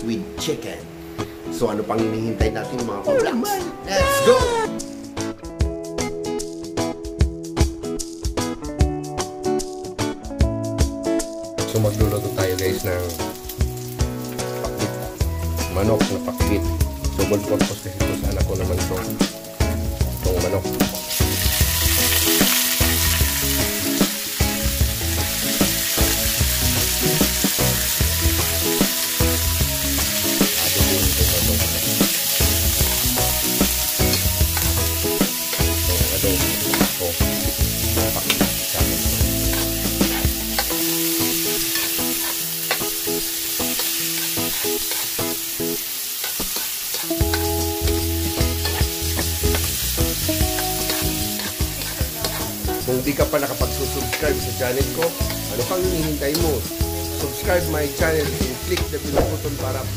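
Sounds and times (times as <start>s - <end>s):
chicken sizzling in hot oil: 11.8s - 59.9s
utensil clicking and scraping pan: 48.6s - 49.7s.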